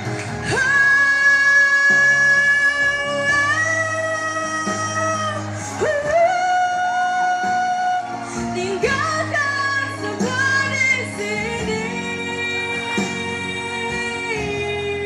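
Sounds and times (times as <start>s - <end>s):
guitar accompaniment: 0.0s - 15.0s
person singing long wordless notes: 0.0s - 15.0s.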